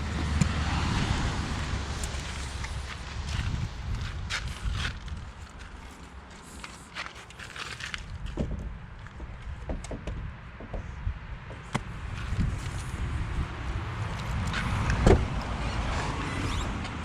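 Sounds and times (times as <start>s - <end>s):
steady low rumble: 0.0s - 6.6s
footsteps: 2.1s - 9.3s.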